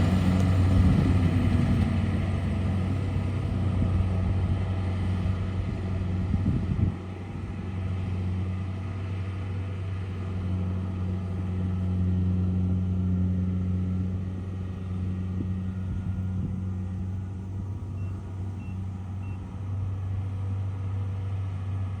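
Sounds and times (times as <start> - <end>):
combine harvester engine humming: 0.0 - 22.0
faint high beeps: 18.0 - 19.4.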